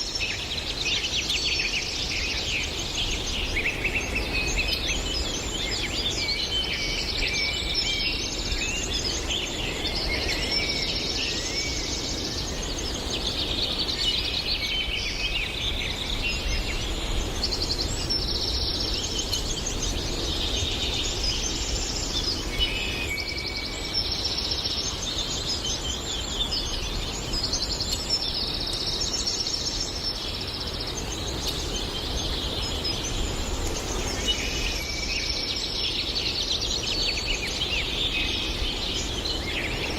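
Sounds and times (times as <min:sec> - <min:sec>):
birds singing and chirping: 0:00.0 - 0:39.9.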